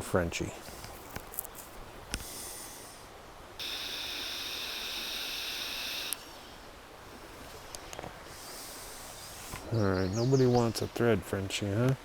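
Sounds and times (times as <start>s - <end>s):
fishing reel drag buzzing: 3.6s - 6.3s
reel click: 3.6s - 6.3s.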